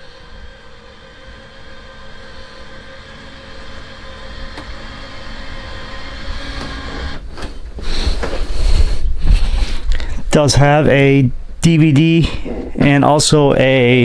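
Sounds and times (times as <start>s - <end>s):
mechanical hum with low rumble: 0.0s - 9.4s.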